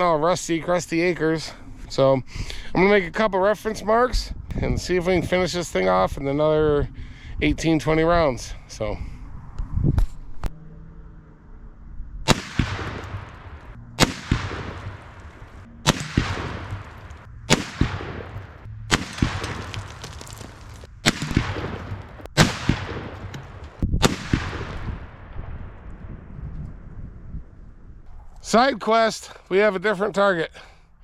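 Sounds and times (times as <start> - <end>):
rifle shots with rolling echo: 12.2 - 26.2.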